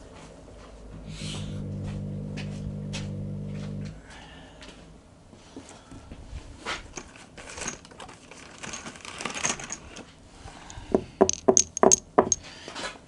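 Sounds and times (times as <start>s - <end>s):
sharp clicks and knocks: 11.2s - 12.4s.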